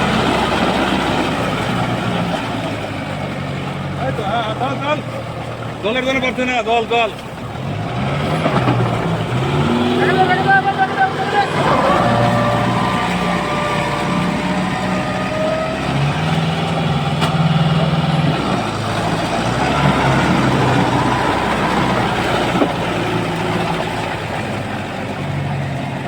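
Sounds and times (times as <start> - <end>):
tractor diesel engine revving: 0.0 - 26.0.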